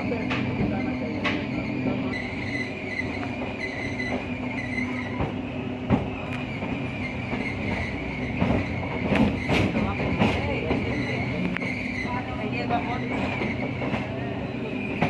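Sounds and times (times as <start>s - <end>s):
train rumbling and rattling: 0.0s - 15.0s
train wheel knocks: 5.0s - 11.0s.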